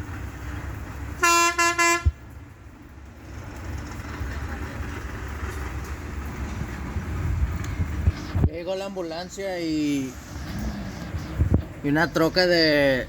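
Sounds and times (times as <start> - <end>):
vehicle horn honks: 1.2 - 2.2.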